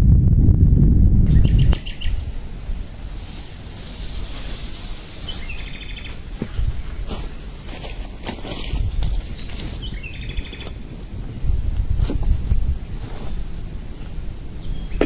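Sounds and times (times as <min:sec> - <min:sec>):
wind rumble on microphone: 0:00.0 - 0:15.0
steady high hiss: 0:01.1 - 0:08.2
bird chirping: 0:01.3 - 0:02.3, 0:04.7 - 0:06.4, 0:09.1 - 0:11.0, 0:14.6 - 0:15.0.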